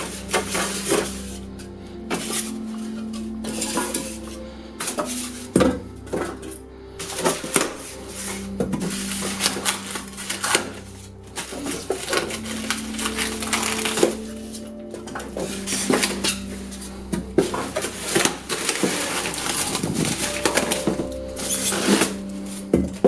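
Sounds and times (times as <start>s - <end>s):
packaging rustling: 7.0s - 22.9s.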